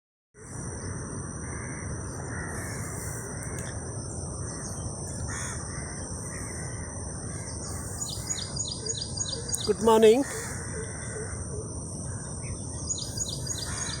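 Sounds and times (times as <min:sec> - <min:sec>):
outdoor background hiss: 0:00.4 - 0:14.0
crows cawing: 0:01.5 - 0:03.6, 0:04.4 - 0:08.2, 0:10.2 - 0:12.3, 0:13.4 - 0:14.0.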